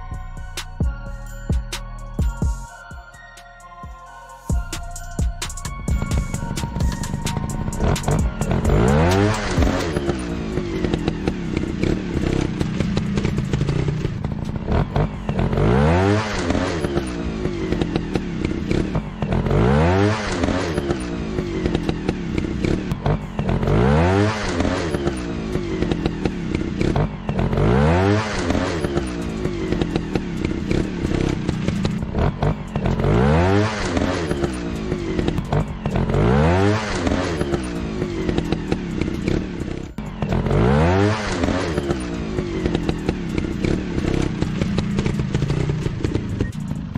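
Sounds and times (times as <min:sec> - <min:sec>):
motorcycle engine revving: 0:05.2 - 0:46.9.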